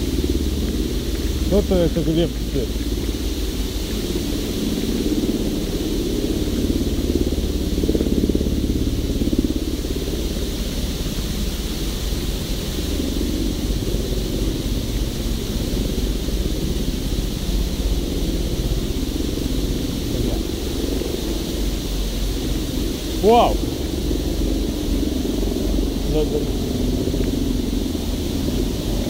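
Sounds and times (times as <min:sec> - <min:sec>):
vehicle moving rumble: 0:00.0 - 0:05.6, 0:16.8 - 0:29.0.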